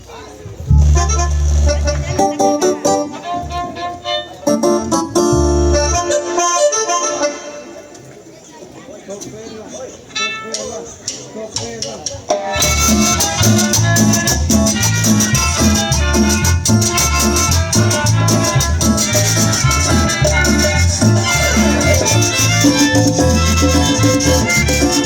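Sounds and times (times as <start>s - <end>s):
heavy pulsing bass: 0.6s - 3.8s, 4.5s - 6.2s, 12.6s - 25.0s
live band playing dance music: 0.6s - 7.9s, 10.5s - 25.0s.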